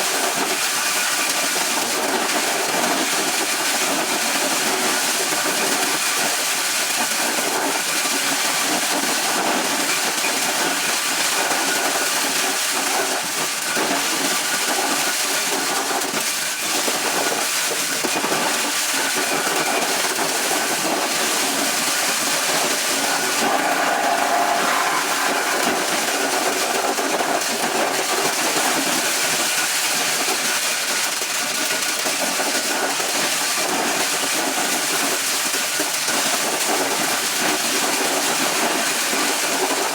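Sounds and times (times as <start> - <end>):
corn shelling machine rushing: 18.2 - 29.5.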